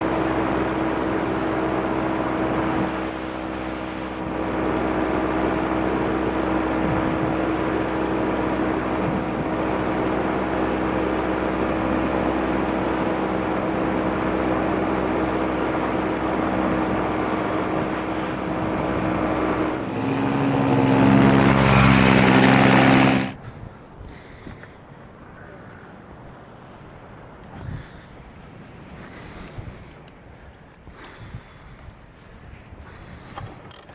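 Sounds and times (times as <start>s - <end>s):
paramotor engine and propeller: 0.0s - 33.9s
air noise: 0.1s - 33.8s.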